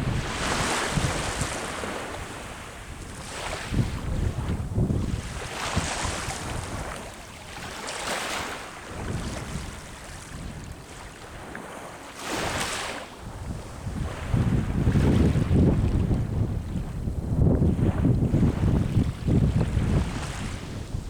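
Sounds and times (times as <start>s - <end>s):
waves breaking on shore: 0.0s - 21.0s
wind buffeting microphone: 0.0s - 21.0s.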